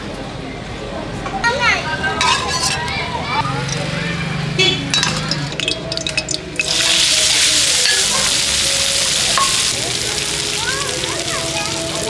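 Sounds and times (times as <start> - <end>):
food sizzling in a wok: 5.1 - 12.0.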